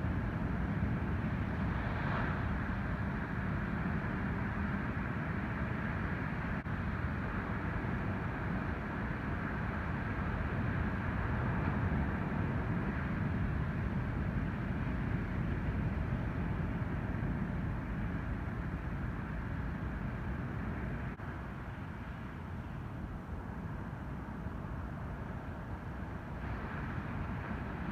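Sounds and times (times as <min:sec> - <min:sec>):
waves breaking on beach: 0:00.8 - 0:05.0.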